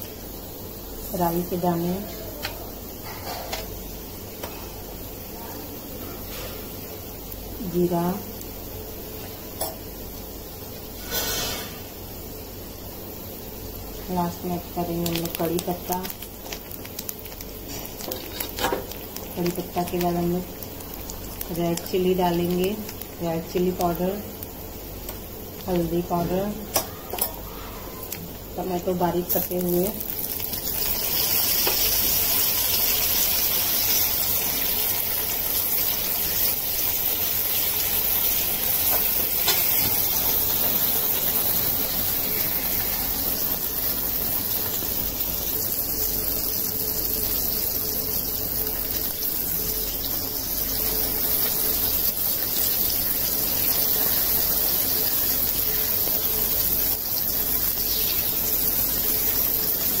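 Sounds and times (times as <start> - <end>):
food frying in hot oil: 0.0 - 60.0.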